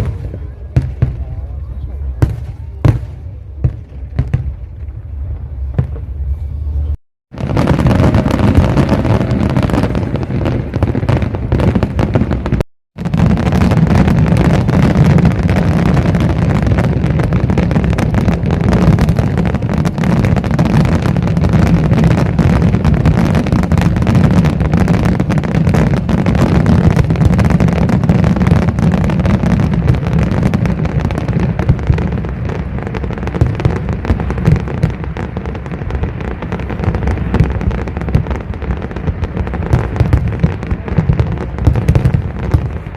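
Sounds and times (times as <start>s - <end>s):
fireworks booming: 0.0s - 42.9s
fireworks crackling: 0.0s - 42.9s.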